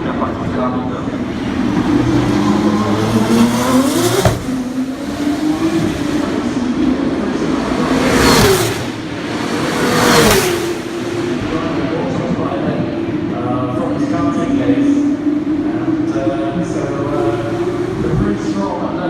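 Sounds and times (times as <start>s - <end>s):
race car engines accelerating: 0.0s - 19.0s
race cars passing close: 0.0s - 19.0s.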